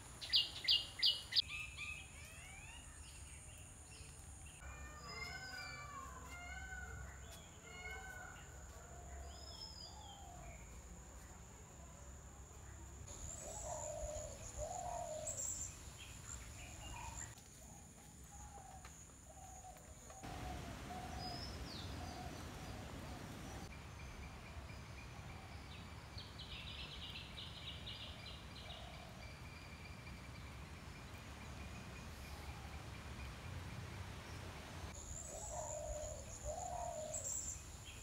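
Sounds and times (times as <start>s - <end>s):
dove-like cooing: 13.4s - 15.4s, 20.3s - 23.7s, 35.3s - 37.3s.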